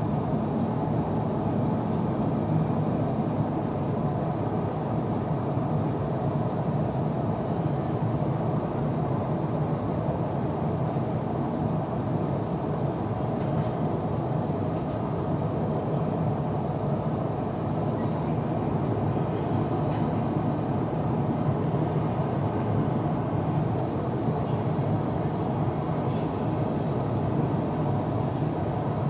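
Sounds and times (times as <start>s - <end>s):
airliner cabin noise: 6.3s - 29.0s.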